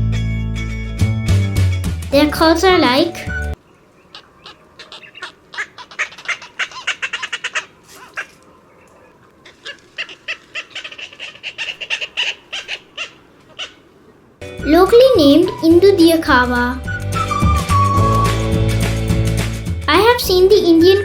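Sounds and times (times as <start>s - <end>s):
cormorants calling: 3.1s - 14.4s.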